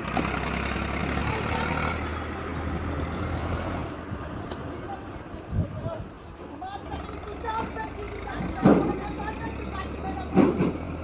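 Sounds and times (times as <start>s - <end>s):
engine running at low speed: 0.0s - 5.4s.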